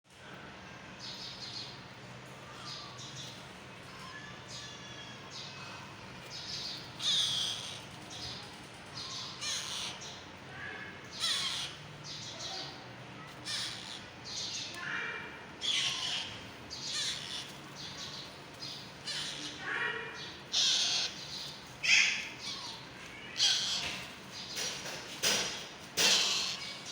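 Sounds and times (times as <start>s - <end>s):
parakeet chicks squawking: 2.5s - 26.9s.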